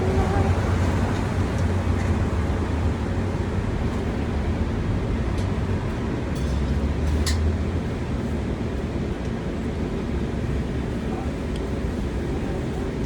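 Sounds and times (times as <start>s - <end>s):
outdoor street noise rumble: 0.0s - 13.0s.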